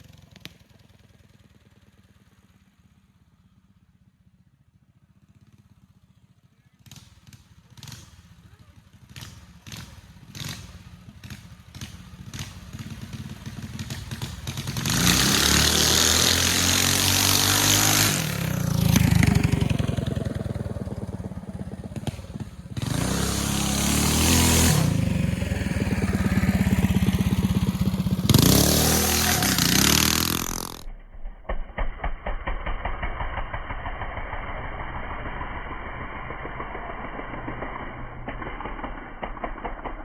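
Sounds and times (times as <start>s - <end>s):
small engine revving: 6.7s - 30.9s
engine putting: 6.8s - 40.0s.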